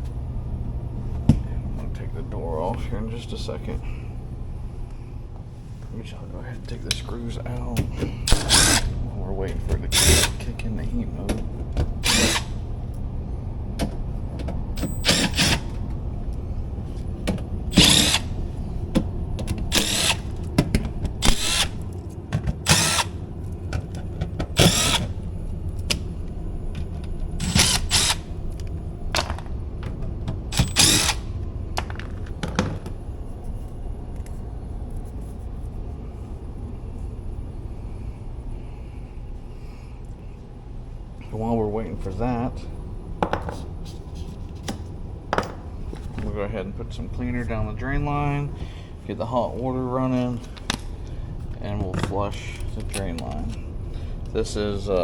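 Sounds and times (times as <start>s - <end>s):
power drill spinning: 8.3s - 9.0s, 9.9s - 10.4s, 12.0s - 12.6s, 14.8s - 15.8s, 17.7s - 18.4s, 19.7s - 20.4s, 21.1s - 21.9s, 22.6s - 23.2s, 24.6s - 25.2s, 27.2s - 28.4s, 30.5s - 31.3s.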